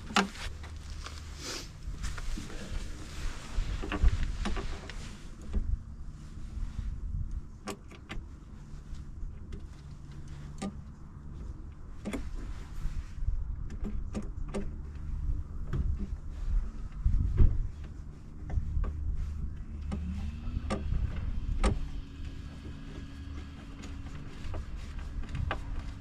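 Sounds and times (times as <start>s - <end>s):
low rumble: 14.8s - 26.0s.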